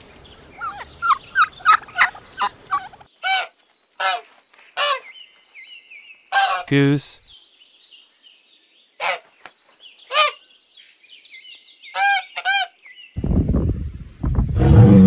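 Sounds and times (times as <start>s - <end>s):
geese honking: 0.6s - 5.0s, 6.3s - 6.7s
cow grunting: 14.6s - 15.0s.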